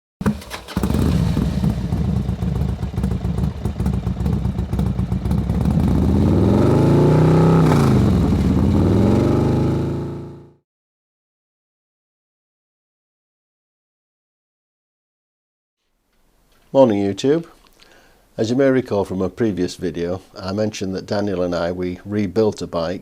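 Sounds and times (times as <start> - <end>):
motorcycle engine running: 0.2 - 10.6.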